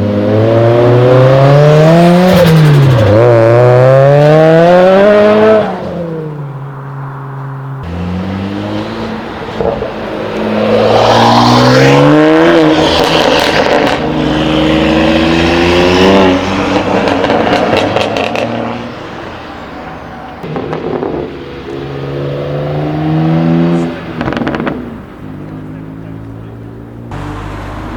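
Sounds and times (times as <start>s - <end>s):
car engine accelerating hard: 7.8s - 18.8s.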